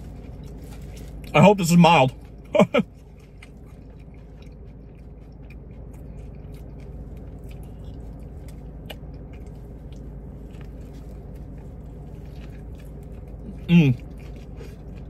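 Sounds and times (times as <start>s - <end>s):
person chewing: 0.0s - 15.0s
steady low hum: 0.0s - 15.0s.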